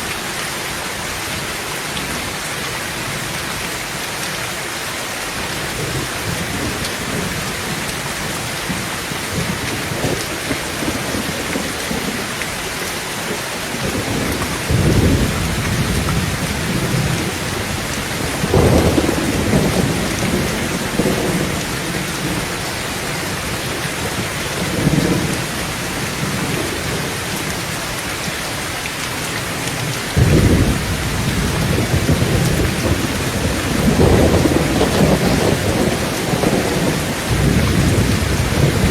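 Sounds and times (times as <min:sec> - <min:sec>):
heavy rain on a tin roof: 0:00.0 - 0:38.9
thunder rumbling: 0:13.7 - 0:27.6, 0:30.2 - 0:38.9.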